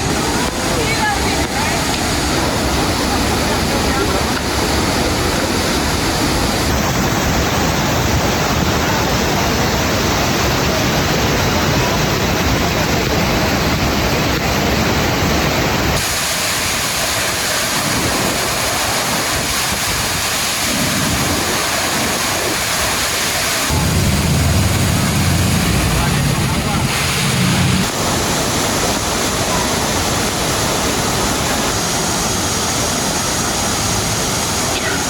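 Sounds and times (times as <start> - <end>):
waterfall pouring into pool: 0.0 - 35.0.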